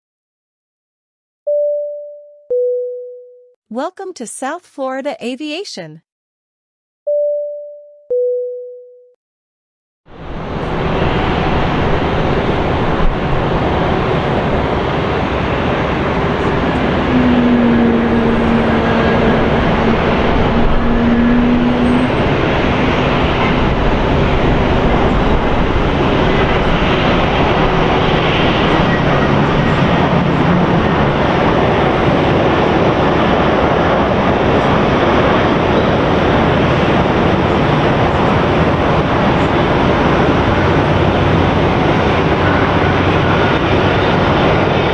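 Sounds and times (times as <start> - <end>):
jet engines roaring: 10.1 - 44.9.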